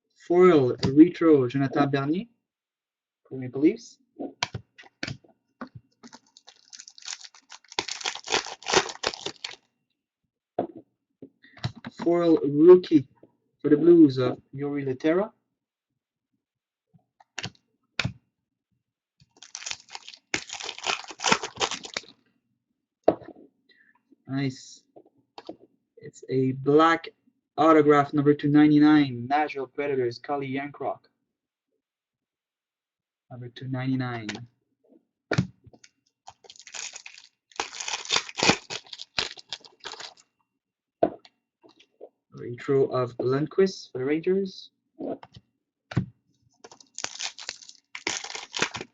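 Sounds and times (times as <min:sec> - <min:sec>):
wrapper crinkling and tearing: 0:06.0 - 0:09.6, 0:19.3 - 0:22.1, 0:36.3 - 0:40.2, 0:46.7 - 0:48.9
card pack wrapper snapping: 0:06.1 - 0:09.6, 0:19.4 - 0:22.1, 0:36.3 - 0:40.2, 0:46.7 - 0:48.9.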